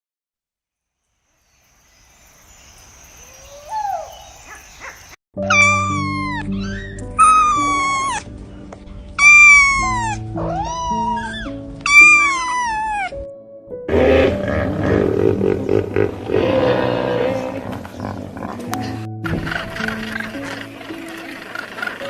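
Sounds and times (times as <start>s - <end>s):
background music slow held notes: 5.4s - 22.0s
animal high drawn-out calls: 5.5s - 8.3s, 9.2s - 13.2s
rough noisy animal sound: 13.9s - 22.0s.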